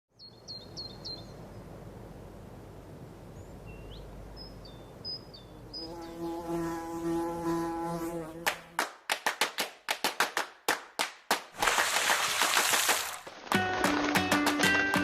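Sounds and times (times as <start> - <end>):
small birds chirping: 0.1 - 1.7, 3.3 - 6.6
outdoor background hiss: 0.1 - 13.5.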